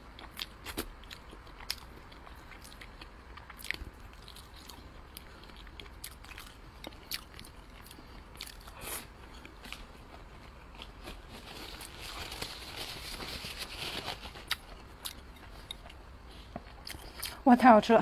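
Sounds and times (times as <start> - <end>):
close chewing with wet smacks: 0.1 - 11.0, 14.4 - 17.4.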